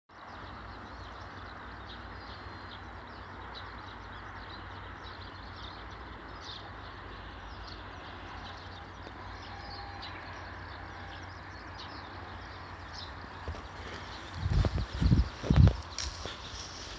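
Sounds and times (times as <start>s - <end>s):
bonfire crackling and hissing: 13.8s - 16.9s.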